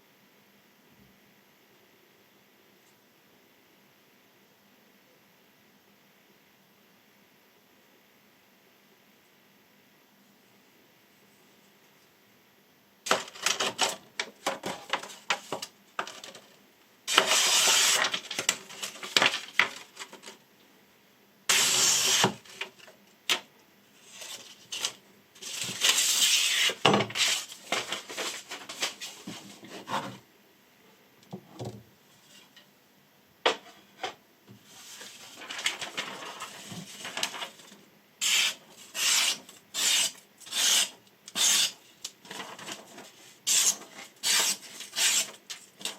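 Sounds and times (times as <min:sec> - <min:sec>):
knife rasping cutting strokes: 0:38.2 - 0:41.7.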